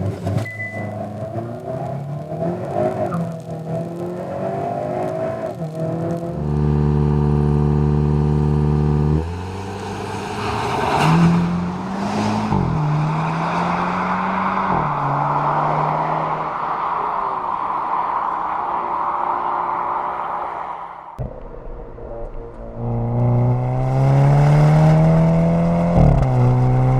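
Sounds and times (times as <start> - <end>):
car engine revving: 0.0 - 26.9
steady rushing noise: 16.1 - 25.7.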